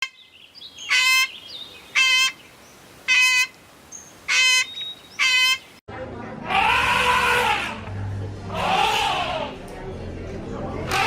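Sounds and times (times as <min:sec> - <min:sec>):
small birds chirping: 0:00.0 - 0:05.8.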